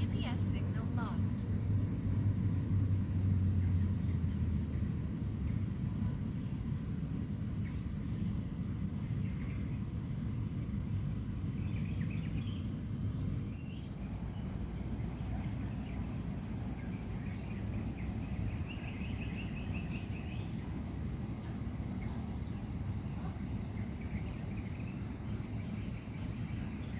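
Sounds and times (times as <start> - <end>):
insects buzzing: 0.0 - 26.9
bird chirping: 11.5 - 26.9.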